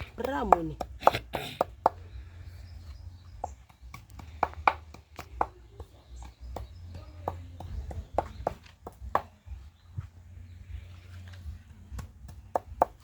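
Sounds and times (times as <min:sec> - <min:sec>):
knife chopping on a board: 0:00.1 - 0:02.0.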